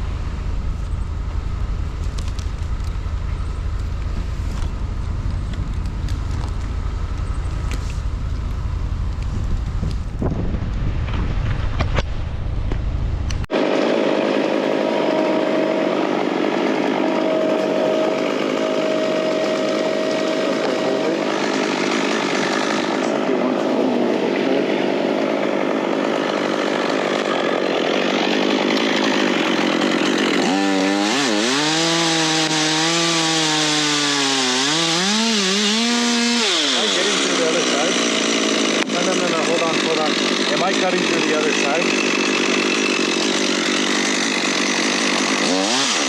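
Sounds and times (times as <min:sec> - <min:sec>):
wind rumble on microphone: 0:00.5 - 0:13.4
chainsaw cutting wood: 0:13.5 - 0:46.0.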